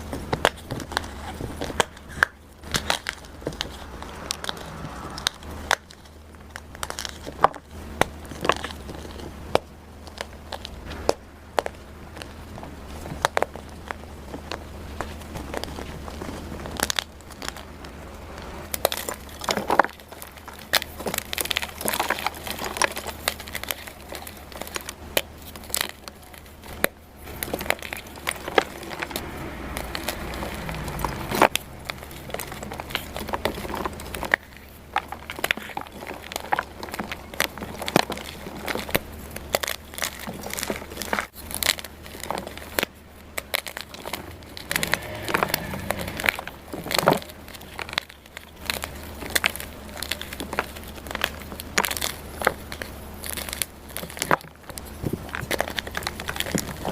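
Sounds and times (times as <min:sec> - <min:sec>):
chalk blocks crunching: 0:00.0 - 0:56.9.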